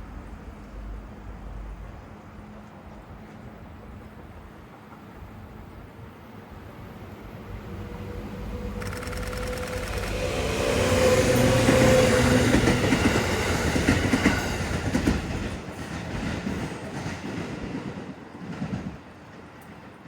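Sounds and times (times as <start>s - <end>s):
train wheels clattering on rails: 8.8s - 20.0s.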